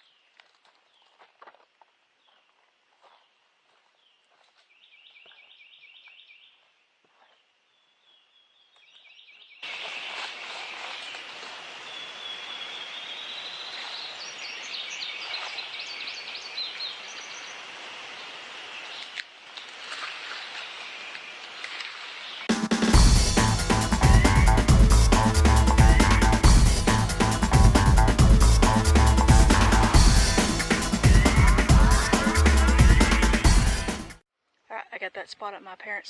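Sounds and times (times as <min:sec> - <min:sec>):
birds singing: 0:07.7 - 0:19.2.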